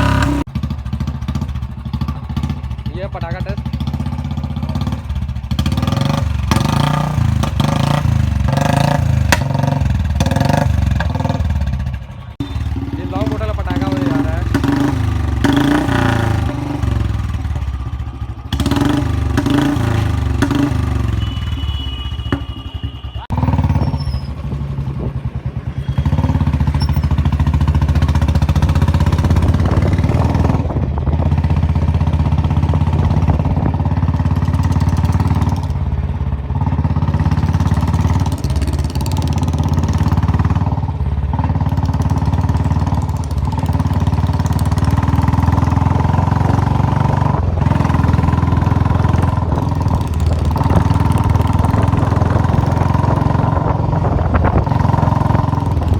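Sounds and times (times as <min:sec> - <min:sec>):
motorcycle engine revving: 0:00.0 - 0:55.9
exhaust pops: 0:09.0 - 0:10.0.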